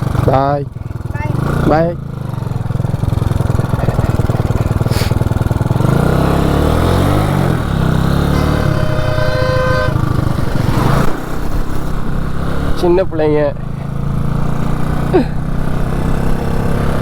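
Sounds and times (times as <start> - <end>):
motorcycle engine revving: 0.0 - 17.0
motorcycle horn: 8.0 - 11.1.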